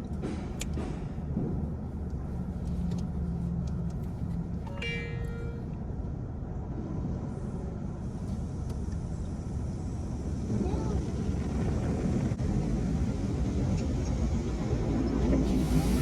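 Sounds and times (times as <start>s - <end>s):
car wash machinery rumble: 6.6s - 16.0s.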